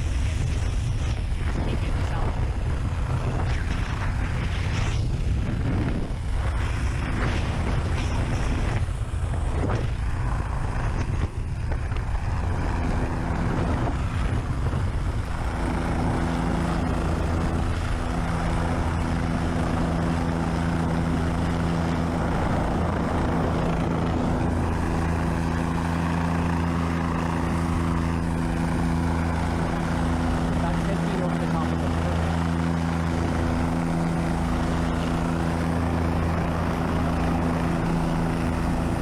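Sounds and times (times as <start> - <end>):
helicopter running: 0.0 - 39.0.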